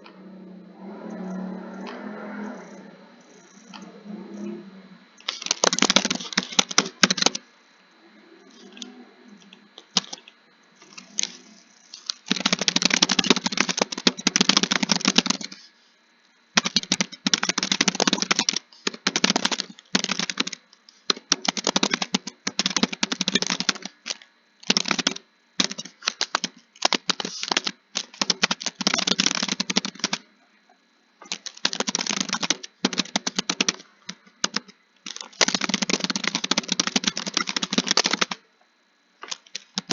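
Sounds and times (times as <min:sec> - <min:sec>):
fast typing on keys: 0:05.2 - 0:07.4, 0:09.8 - 0:10.3, 0:12.0 - 0:15.6, 0:16.6 - 0:30.2, 0:31.2 - 0:38.4, 0:39.2 - 0:39.9.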